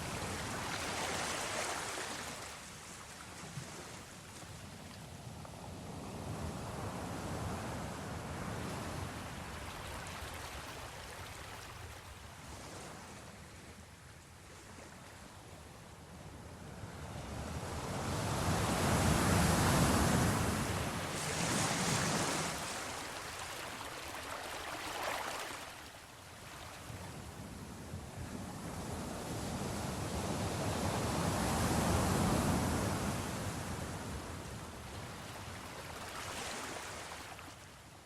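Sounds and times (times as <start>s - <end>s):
sea waves washing in: 17.8s - 27.4s.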